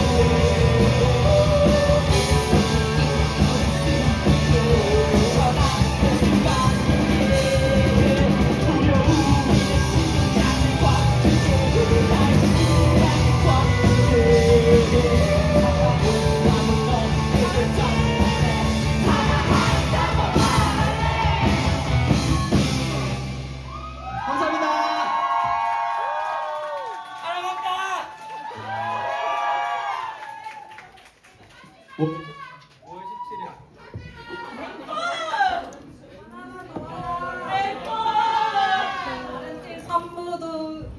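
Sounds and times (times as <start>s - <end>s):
person singing: 0.0s - 22.6s
live rock band playing: 0.0s - 23.8s
audience cheering and whooping: 17.8s - 35.8s, 37.3s - 39.8s.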